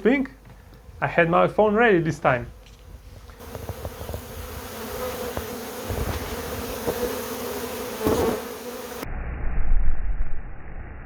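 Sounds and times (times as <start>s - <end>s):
bee swarm buzzing: 2.2s - 9.0s
low rumble: 9.0s - 11.0s.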